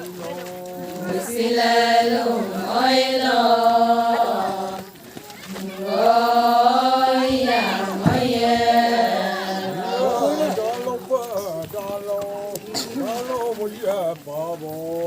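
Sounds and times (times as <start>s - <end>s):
voices singing long notes: 0.0s - 10.9s.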